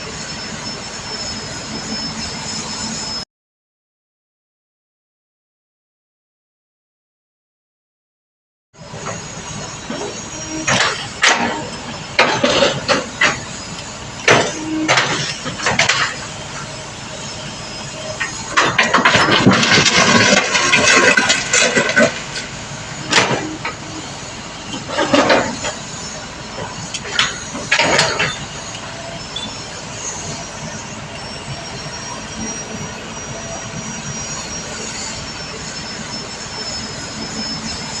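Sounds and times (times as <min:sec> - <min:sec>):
excavator diesel engine running: 0:00.0 - 0:03.2, 0:08.8 - 0:38.0
thin high whine: 0:00.0 - 0:03.3
sharp knocks and clanks: 0:14.2 - 0:16.2.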